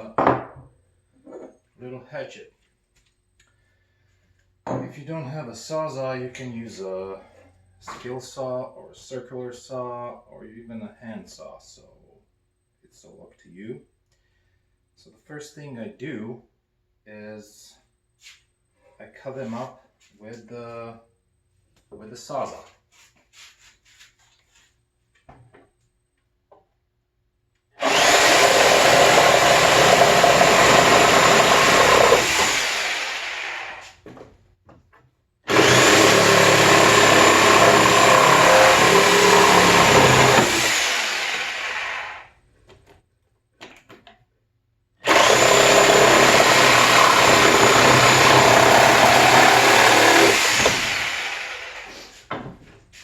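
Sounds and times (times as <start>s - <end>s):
reciprocating saw cutting wood: 27.8s - 34.0s, 35.5s - 42.3s, 45.0s - 52.3s.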